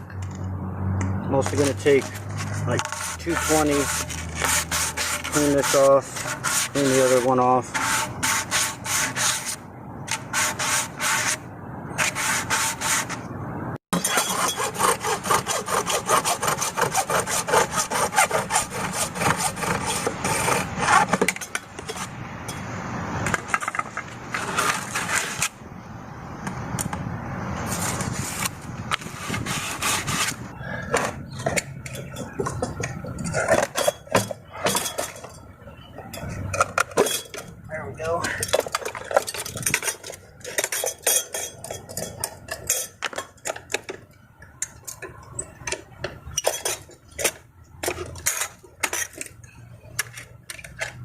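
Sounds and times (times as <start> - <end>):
hand sanding a pipe: 1.8 - 11.4, 12.0 - 13.2, 14.0 - 21.1.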